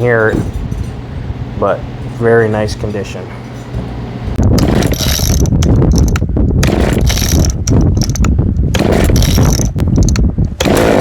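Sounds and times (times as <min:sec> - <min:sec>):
chainsaw engine cranking: 0:04.6 - 0:11.0
chainsaw recoil starter pulled: 0:04.6 - 0:11.0.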